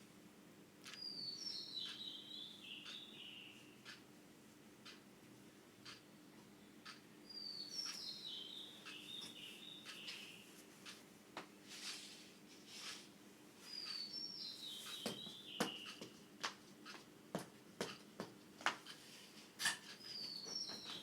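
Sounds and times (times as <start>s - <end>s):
bird singing: 0.9s - 3.9s, 7.2s - 10.6s, 13.6s - 16.2s, 20.0s - 21.0s.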